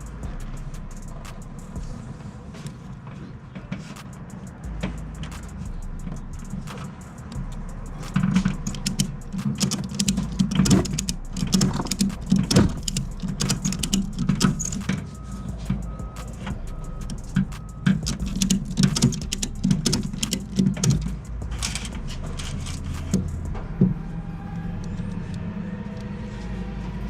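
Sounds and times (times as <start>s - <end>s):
vehicle engine rumbling: 0.0s - 27.0s
short clicks and rattles: 4.8s - 15.5s, 16.2s - 23.5s.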